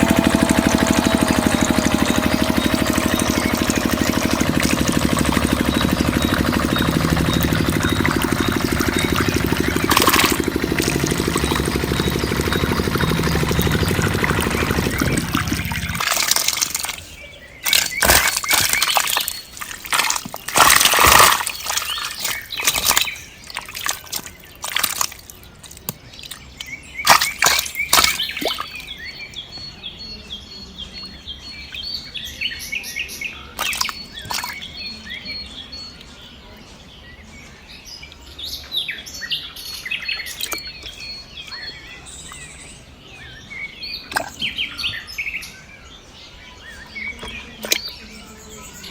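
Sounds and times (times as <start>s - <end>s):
water splashing: 0.0s - 28.9s, 33.6s - 34.6s
small birds chirping: 0.0s - 48.9s.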